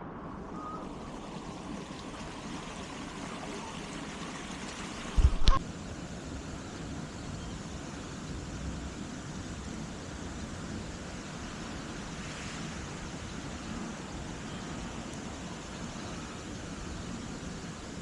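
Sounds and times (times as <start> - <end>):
wind on microphone: 0.0 - 5.6.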